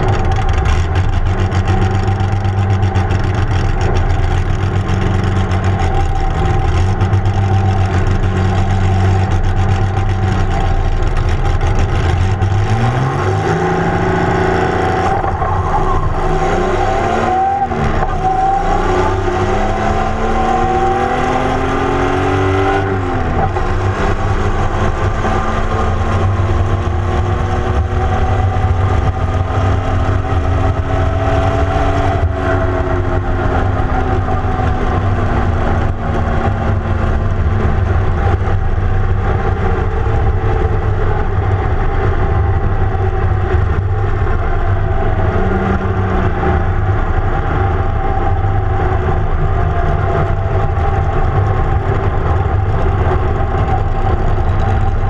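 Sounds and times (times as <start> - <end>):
dragster engine running: 0.0 - 12.8
wind and road noise: 0.0 - 55.0.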